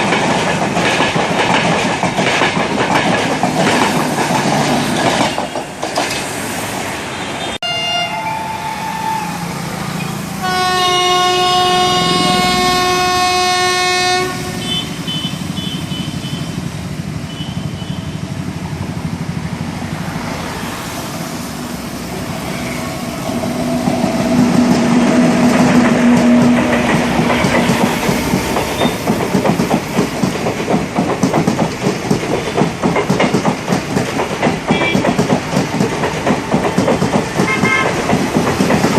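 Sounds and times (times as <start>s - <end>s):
train wheels clattering over rail joints: 0.0s - 6.5s, 22.6s - 38.9s
locomotive horn: 7.5s - 16.6s, 23.2s - 27.2s, 37.5s - 38.0s
lower train horn: 7.6s - 16.6s, 23.2s - 29.0s, 37.5s - 38.0s.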